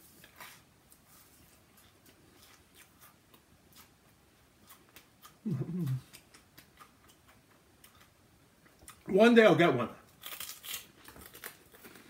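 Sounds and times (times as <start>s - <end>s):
person chewing food: 0.0s - 9.1s, 10.1s - 12.0s.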